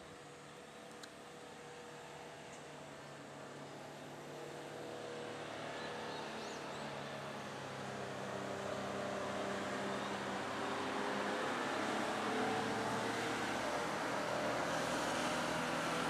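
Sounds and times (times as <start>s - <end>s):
road vehicle engine hum: 0.0s - 16.0s.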